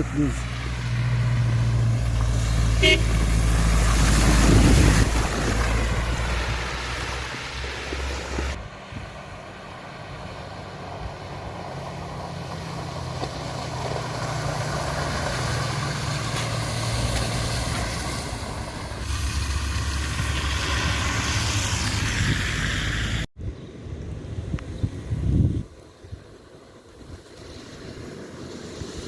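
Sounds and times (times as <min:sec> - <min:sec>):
vehicle engine humming: 0:00.0 - 0:24.3
wind rumble on microphone: 0:03.2 - 0:09.5, 0:18.8 - 0:29.0.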